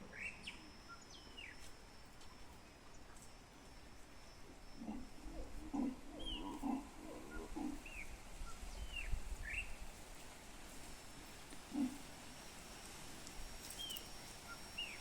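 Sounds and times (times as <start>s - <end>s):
wild animal low calls: 4.6s - 8.2s, 11.6s - 12.1s
small birds chirping: 4.8s - 9.8s, 13.7s - 15.0s.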